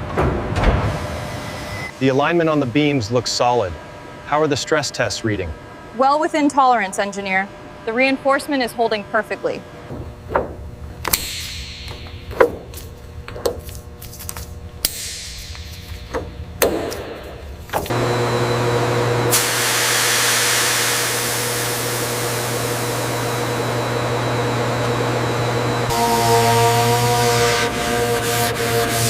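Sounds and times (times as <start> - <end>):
sharp knocks: 9.9 - 12.8, 16.0 - 17.9
power tool hissing and humming: 17.8 - 29.0.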